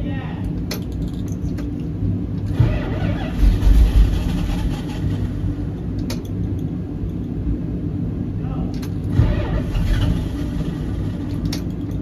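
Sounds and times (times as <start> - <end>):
car engine running and revving: 2.4 - 8.2, 8.8 - 12.0.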